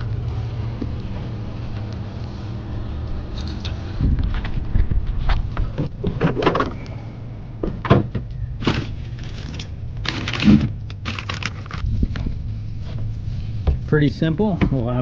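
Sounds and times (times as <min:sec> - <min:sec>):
knocks and thuds of handling: 0:13.6 - 0:13.9.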